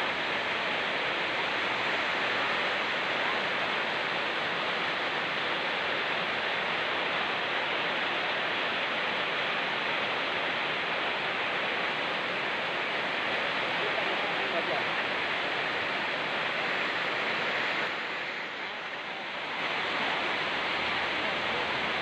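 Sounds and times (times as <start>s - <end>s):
rain falling in forest: 0.0s - 22.0s
river rushing: 0.0s - 22.0s.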